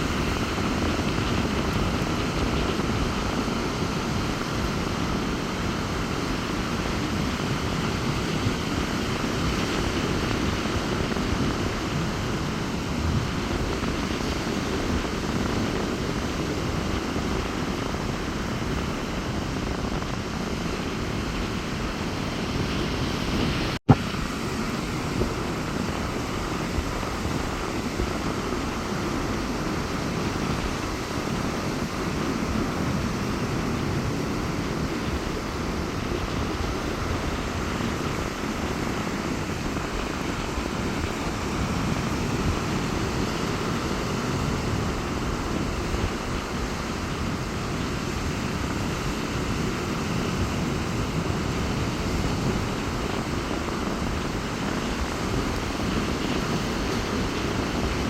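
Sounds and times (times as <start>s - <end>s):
surf washing onto beach: 0.0s - 58.0s
wind buffeting microphone: 0.0s - 58.0s.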